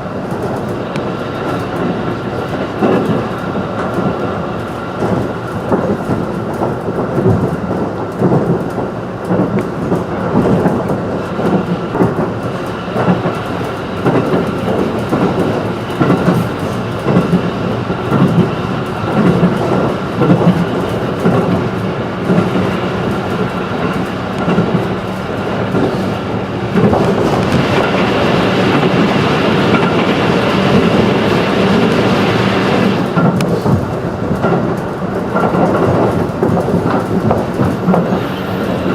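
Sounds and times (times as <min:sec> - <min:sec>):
train wheels rumbling on rails: 0:00.0 - 0:38.9
loud rushing noise: 0:10.4 - 0:34.3, 0:35.8 - 0:38.9.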